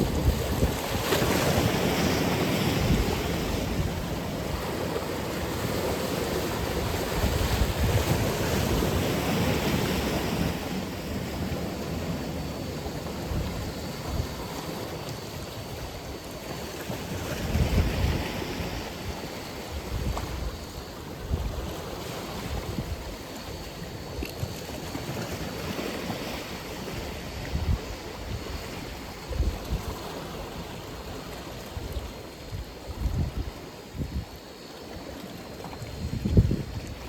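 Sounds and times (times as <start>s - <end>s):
wind buffeting microphone: 0.0s - 15.0s, 16.9s - 23.2s, 23.8s - 31.2s, 35.8s - 37.0s
ocean waves breaking: 0.0s - 19.9s.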